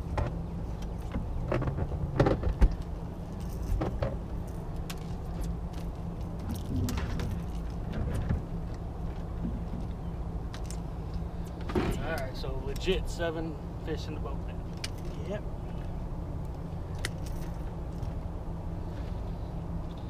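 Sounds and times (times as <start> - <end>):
boat motor humming: 0.0 - 12.2.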